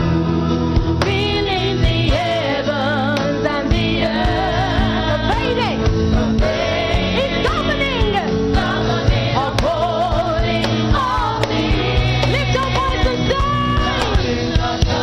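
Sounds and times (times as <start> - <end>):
bass notes: 0.0 - 15.0
choir singing: 0.4 - 15.0
drum beat: 3.7 - 15.0.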